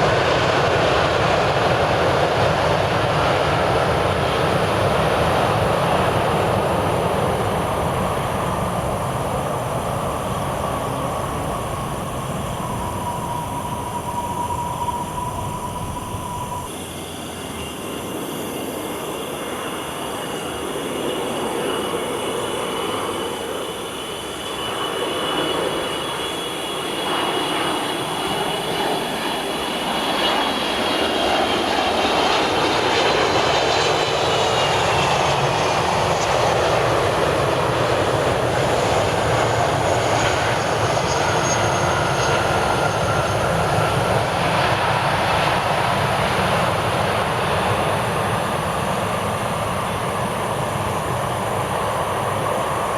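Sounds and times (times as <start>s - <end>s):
jet engines whining: 0.0s - 52.9s
steady rumble: 7.5s - 17.6s.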